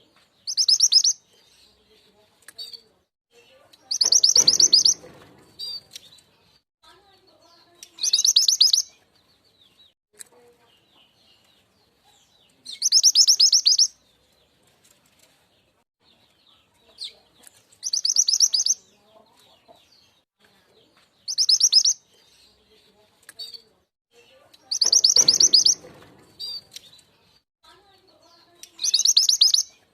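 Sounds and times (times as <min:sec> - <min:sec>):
bird rapid high trills: 0:24.8 - 0:25.8.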